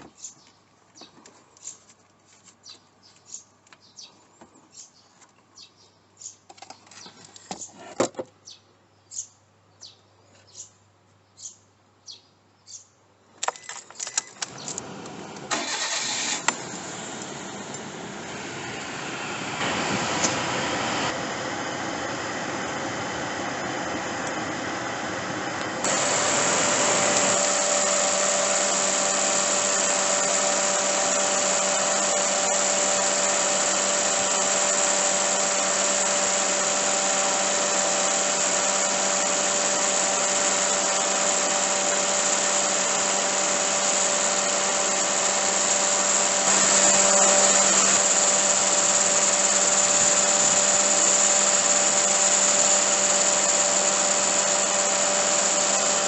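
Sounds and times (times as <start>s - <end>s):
car engine running: 14.5s - 56.0s.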